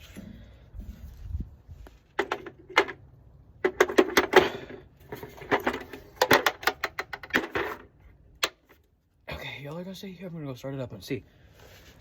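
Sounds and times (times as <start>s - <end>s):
sharp clicks and knocks: 5.1s - 8.8s.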